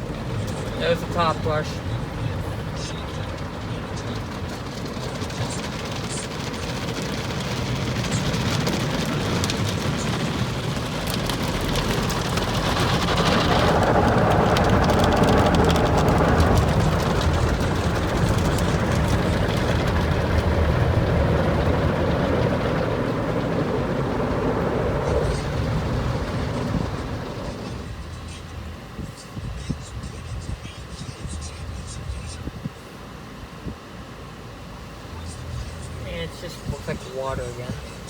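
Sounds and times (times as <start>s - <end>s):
car wash brushes and water spray: 0.0s - 29.3s.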